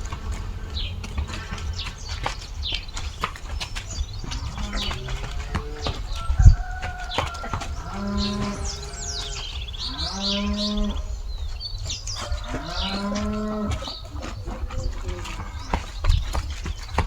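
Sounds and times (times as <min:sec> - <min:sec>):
birds chirping: 0:00.0 - 0:17.0
cattle mooing: 0:04.1 - 0:11.3, 0:12.2 - 0:15.7.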